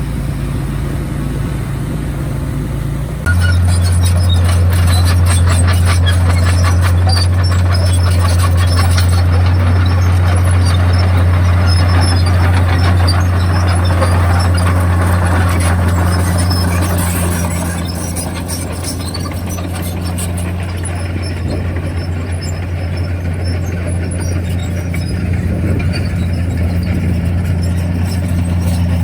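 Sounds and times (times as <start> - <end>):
bulldozer engine drone: 0.0 - 29.0
steel tracks clicking and clanking: 3.2 - 29.0.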